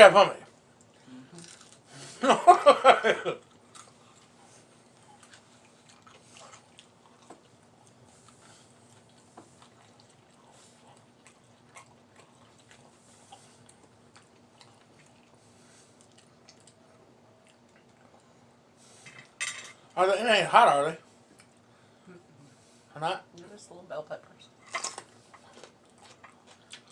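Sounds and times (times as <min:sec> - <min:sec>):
faint steady hum: 0:00.0 - 0:26.9
people chewing and biting: 0:00.8 - 0:02.2, 0:03.3 - 0:19.4, 0:24.6 - 0:26.9.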